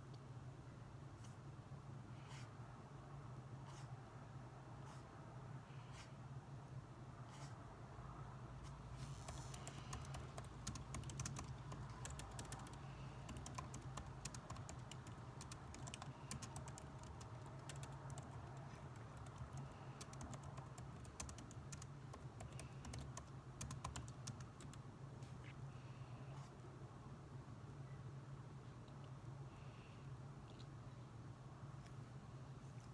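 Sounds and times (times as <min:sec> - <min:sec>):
steady low hum: 0:00.0 - 0:32.9
typing on computer keyboard: 0:09.1 - 0:24.8.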